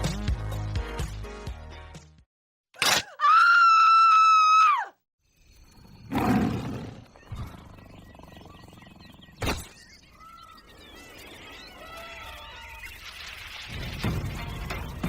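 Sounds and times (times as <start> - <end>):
high-pitched scream: 3.0 - 4.9.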